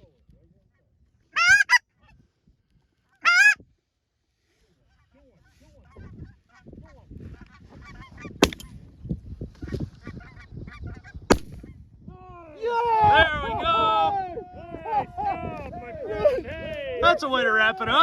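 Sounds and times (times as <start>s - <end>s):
geese clucking and murmuring: 1.4s - 2.2s, 3.1s - 3.6s, 4.8s - 8.4s
shotgun blast: 8.4s - 8.7s, 11.3s - 11.6s.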